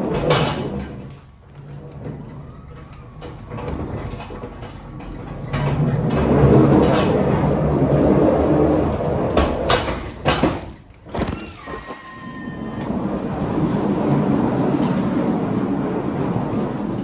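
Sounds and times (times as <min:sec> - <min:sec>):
pallet jack rolling rumble: 0:00.0 - 0:17.0
brief steady tone: 0:11.3 - 0:12.9.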